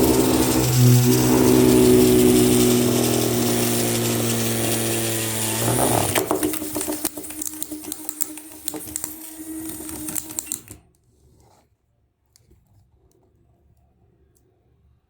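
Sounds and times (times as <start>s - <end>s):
rapid crackling clicks: 0.0s - 10.8s
toy motor buzzing: 0.0s - 10.8s.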